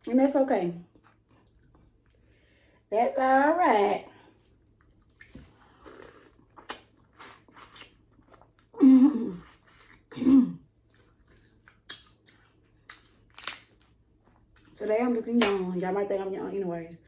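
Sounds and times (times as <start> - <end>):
chewing with wet crunches: 0.9 - 2.3, 10.8 - 14.8.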